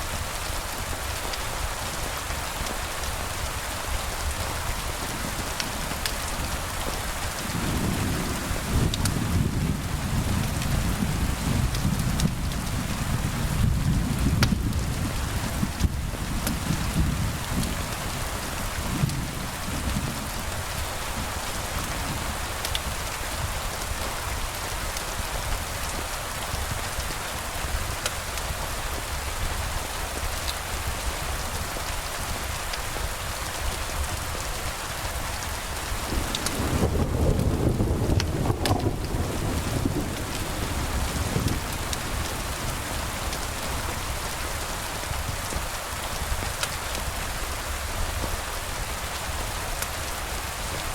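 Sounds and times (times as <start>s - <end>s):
steady rain falling: 0.0s - 50.9s
low roll of thunder: 6.8s - 23.0s, 35.7s - 44.3s.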